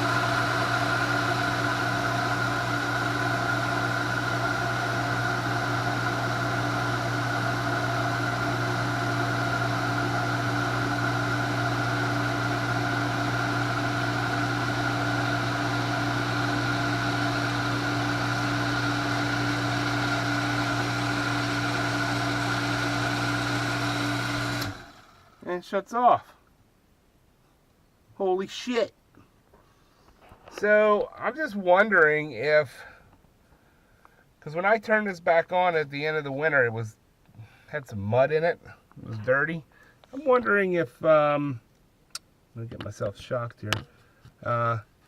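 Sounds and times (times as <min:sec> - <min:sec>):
water pump motor humming: 0:00.0 - 0:25.4.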